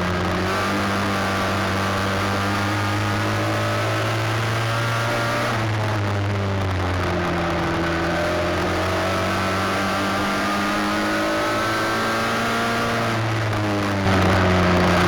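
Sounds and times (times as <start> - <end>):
race car engine running: 0.0 - 15.0.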